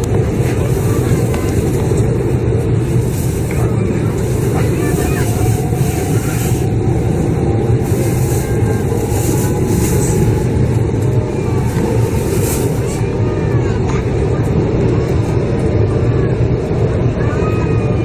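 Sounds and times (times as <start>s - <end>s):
train rumble inside cabin: 0.0s - 18.0s.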